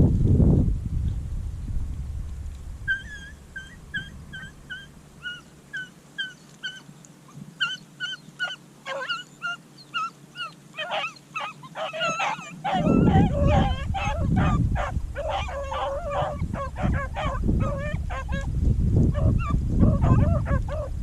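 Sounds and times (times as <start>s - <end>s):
low rumble: 0.0s - 5.1s
dogs yipping: 2.9s - 18.5s, 19.1s - 21.0s.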